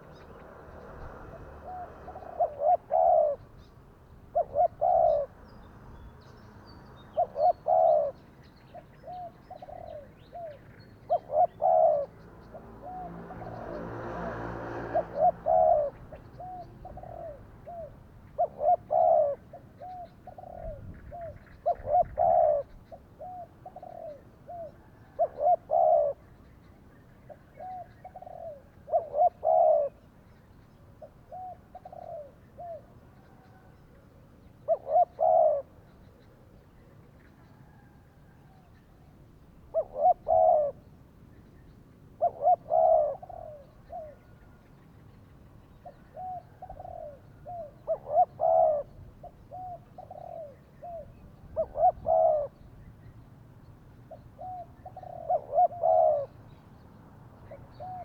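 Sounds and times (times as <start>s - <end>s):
doves cooing: 0.0s - 5.4s, 7.0s - 26.4s, 27.2s - 30.1s, 31.0s - 36.7s, 37.5s - 40.9s, 42.2s - 44.6s, 45.8s - 52.8s, 54.1s - 56.6s, 57.4s - 58.0s.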